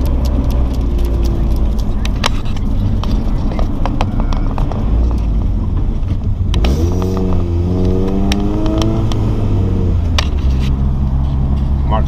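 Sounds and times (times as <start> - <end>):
sharp ticks of rocks: 0.0 - 5.3, 6.5 - 9.3
car engine accelerating: 0.0 - 12.0.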